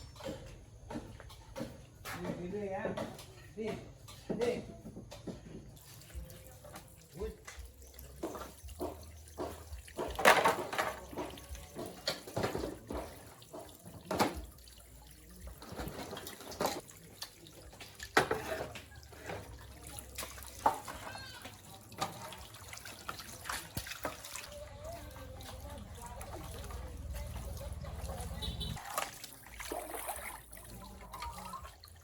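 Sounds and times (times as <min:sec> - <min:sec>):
water splashing and running: 0:05.7 - 0:32.0.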